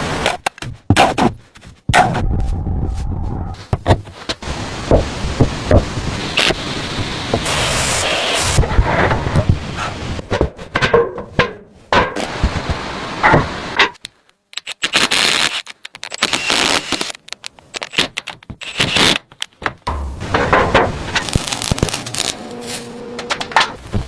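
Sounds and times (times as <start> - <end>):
wood knocks and cracks: 10.3 - 12.6, 19.3 - 22.2.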